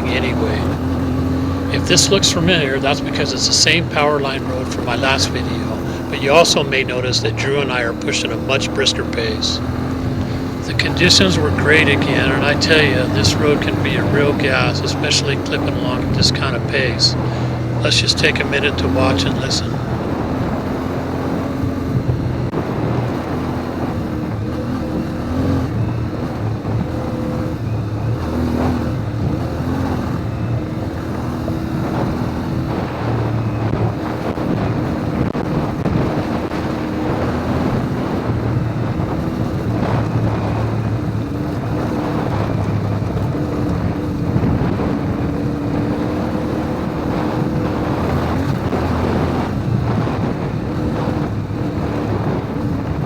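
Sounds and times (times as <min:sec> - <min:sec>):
motorcycle engine running hard: 0:00.0 - 0:53.0
tyre and road noise: 0:00.0 - 0:53.0
wind noise on microphone: 0:19.7 - 0:53.0.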